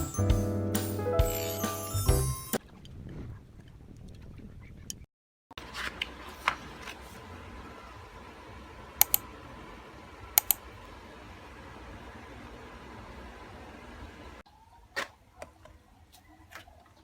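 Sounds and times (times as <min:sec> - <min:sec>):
sharp double clicks: 0:09.0 - 0:09.2, 0:10.4 - 0:10.6.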